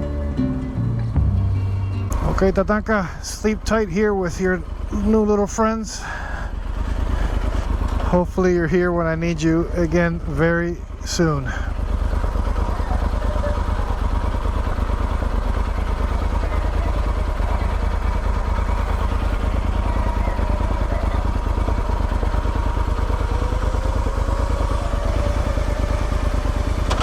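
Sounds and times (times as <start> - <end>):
faint rising tone: 0.0 - 2.5
motorcycle engine running: 0.0 - 27.0.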